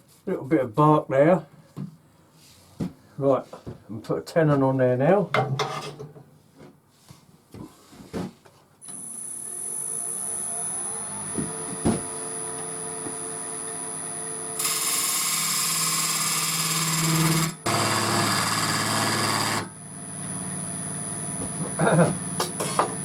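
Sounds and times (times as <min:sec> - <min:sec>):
wood lathe whining: 0:08.9 - 0:23.0
turning tool cutting wood: 0:14.6 - 0:19.7.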